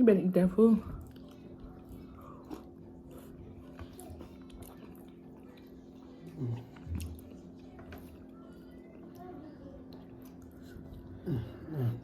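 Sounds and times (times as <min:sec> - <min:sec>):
chewing and mouth clicks: 0:00.9 - 0:12.0.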